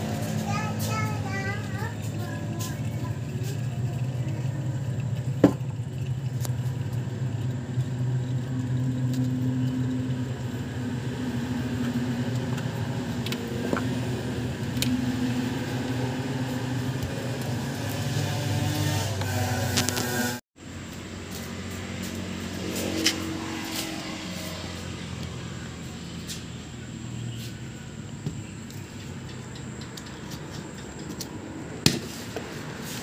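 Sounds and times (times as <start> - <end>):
engine idling: 0.0 - 17.7.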